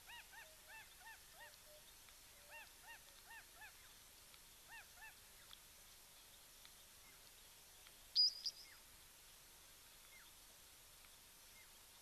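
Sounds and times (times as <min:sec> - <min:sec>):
bird calling faintly: 0:00.0 - 0:08.9.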